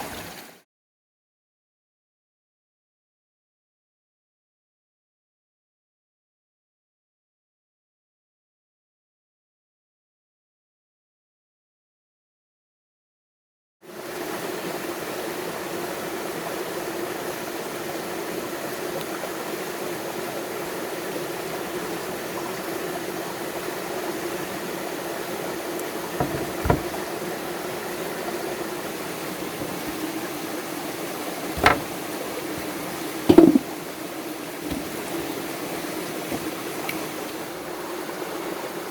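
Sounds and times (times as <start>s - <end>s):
flowing water: 0.0s - 0.6s, 13.9s - 38.9s
sharp knocks: 26.2s - 27.1s, 31.5s - 32.0s, 33.3s - 33.7s.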